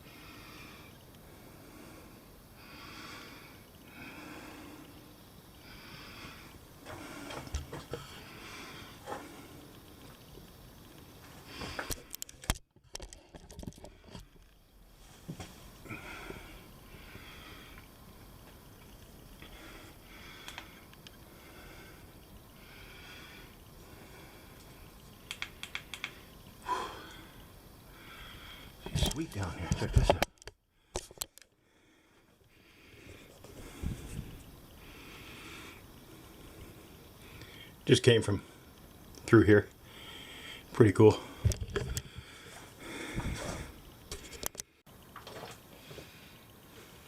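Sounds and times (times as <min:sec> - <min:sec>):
man breathing heavily: 0:00.0 - 0:09.8, 0:15.3 - 0:18.6, 0:19.3 - 0:25.0, 0:26.3 - 0:29.9, 0:30.7 - 0:37.8, 0:39.8 - 0:44.5
sharp clicks: 0:25.2 - 0:26.3.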